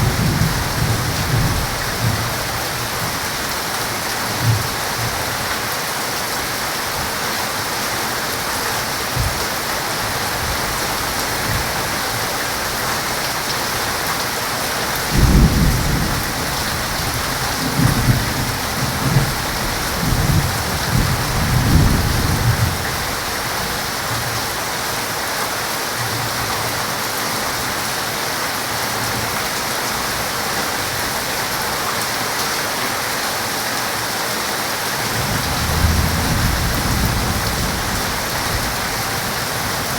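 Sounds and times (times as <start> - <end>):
thunder rumbling: 0.0 - 3.0, 15.0 - 23.1, 35.1 - 39.9
heavy rain falling: 0.0 - 39.9.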